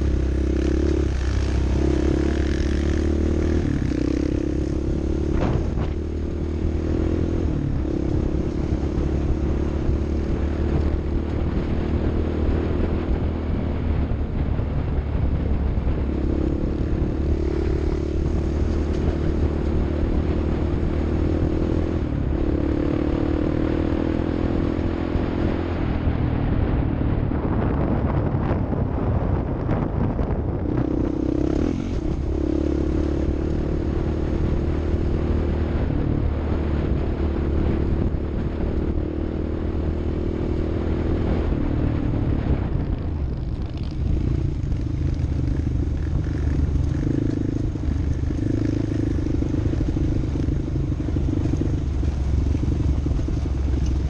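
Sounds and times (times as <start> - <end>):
off-road vehicle engine revving: 17.2 - 24.8.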